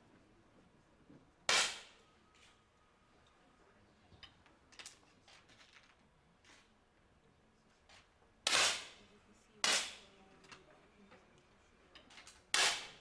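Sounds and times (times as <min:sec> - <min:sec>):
air pistol shots: 0:08.5 - 0:08.9, 0:12.6 - 0:13.0.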